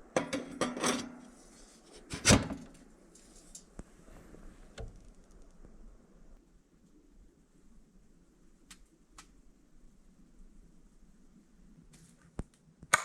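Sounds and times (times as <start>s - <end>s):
faint clicks: 8.6s - 9.4s.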